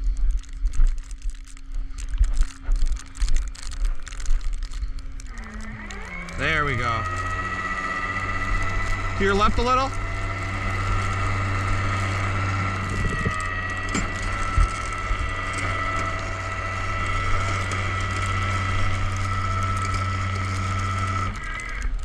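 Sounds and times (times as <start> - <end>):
winch humming and whining: 3.0 - 22.0
clunks: 5.3 - 21.9.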